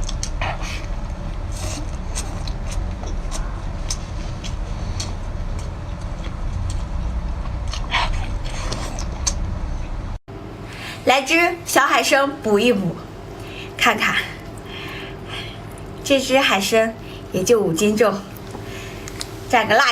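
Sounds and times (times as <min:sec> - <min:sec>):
steady low rumble: 0:00.0 - 0:19.9.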